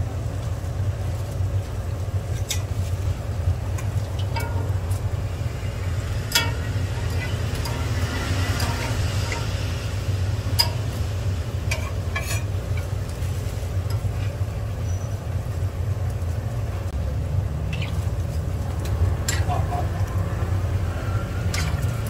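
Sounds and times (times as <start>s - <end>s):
steady low rumble: 0.0s - 22.0s
dough sizzling in oil: 0.1s - 16.7s.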